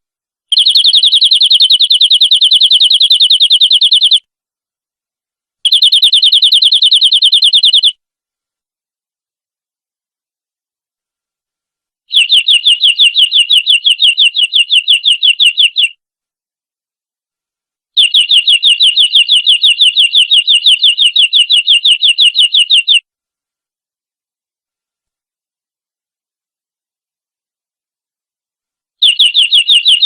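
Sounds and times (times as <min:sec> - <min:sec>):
canary singing rolling trills: 0:00.5 - 0:04.2, 0:05.7 - 0:07.9, 0:12.1 - 0:16.0, 0:18.0 - 0:23.0, 0:29.0 - 0:30.0.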